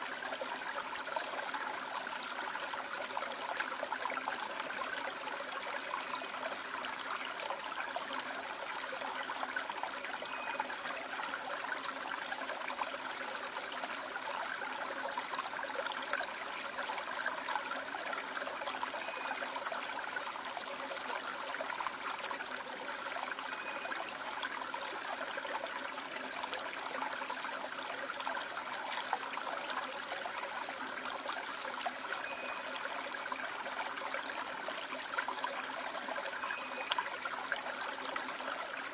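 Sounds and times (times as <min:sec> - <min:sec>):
stream water running over rocks: 0:00.0 - 0:38.9.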